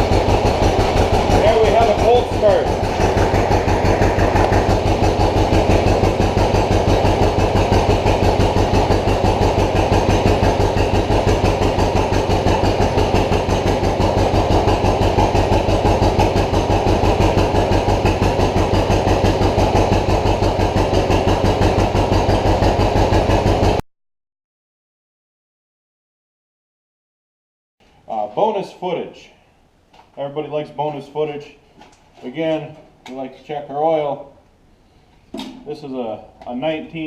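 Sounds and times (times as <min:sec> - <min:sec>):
tractor engine popping: 0:00.0 - 0:23.8.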